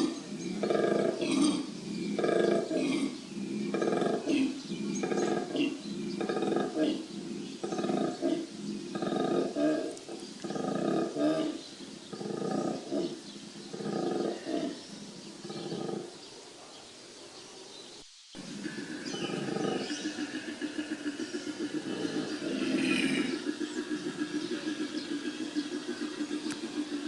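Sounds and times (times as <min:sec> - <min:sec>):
koala bellowing: 0:18.4 - 0:27.0.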